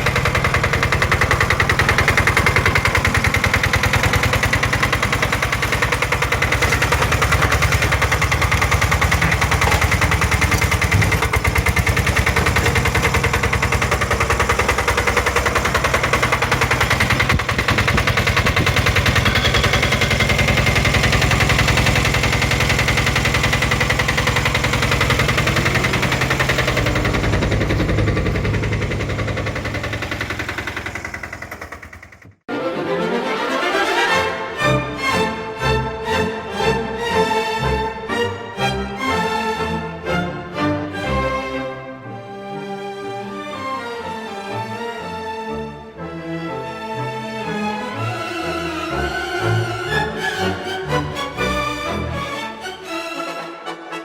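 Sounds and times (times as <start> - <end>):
dump carrier engine running: 0.0 - 32.4.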